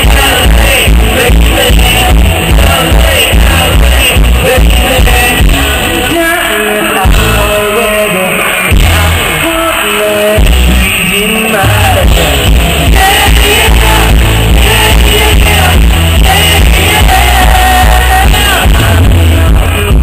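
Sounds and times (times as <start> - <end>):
live pop-rock band playing: 0.0 - 20.0
person singing: 0.0 - 20.0
crowd shouting: 11.6 - 19.9.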